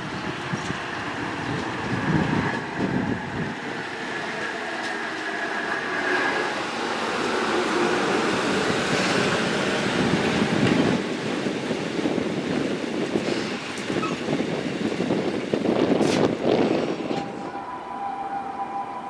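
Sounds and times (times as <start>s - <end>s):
train wheels on rails: 0.0s - 19.0s
high squeal: 17.1s - 19.0s.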